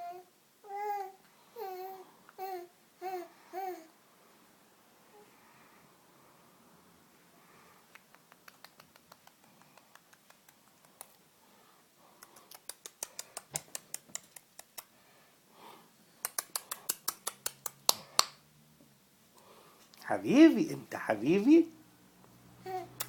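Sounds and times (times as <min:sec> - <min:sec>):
quick sharp clicks: 0:12.2 - 0:14.9, 0:16.2 - 0:18.3.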